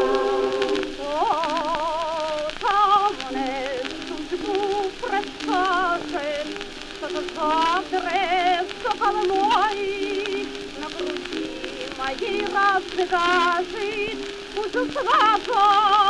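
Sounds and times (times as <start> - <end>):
choir with heavy vibrato: 0.0 - 3.5
record surface crackle: 0.0 - 16.0.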